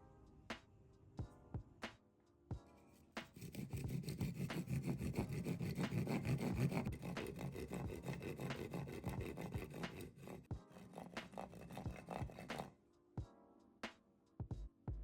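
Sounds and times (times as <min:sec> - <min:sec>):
hand saw cutting wood: 0:03.2 - 0:12.7.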